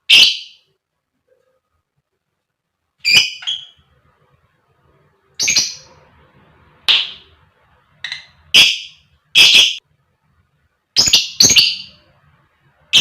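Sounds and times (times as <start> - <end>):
lovebird shrill calls: 0.1 - 0.7, 3.0 - 3.8, 5.4 - 5.9, 8.0 - 9.8, 11.0 - 12.0.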